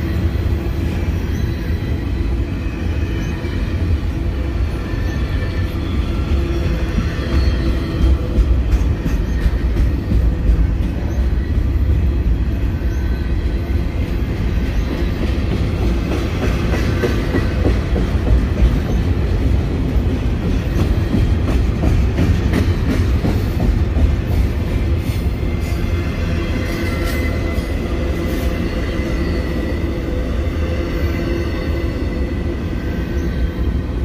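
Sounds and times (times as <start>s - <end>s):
freight train rumbling past: 0.0s - 34.0s
wheels clacking over rail joints: 14.7s - 25.8s.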